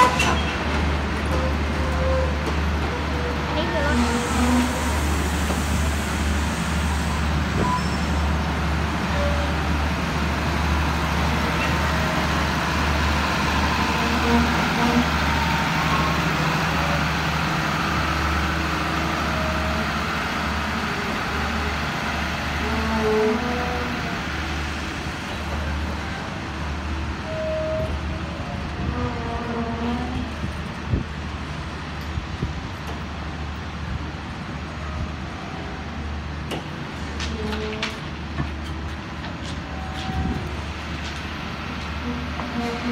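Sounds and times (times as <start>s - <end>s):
train coaches rolling: 0.0s - 42.9s
brief high squeals: 7.1s - 8.1s.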